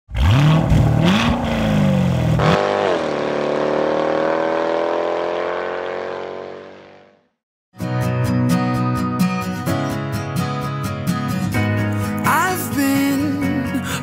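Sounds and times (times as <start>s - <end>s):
sports car engine revving: 0.1s - 7.2s.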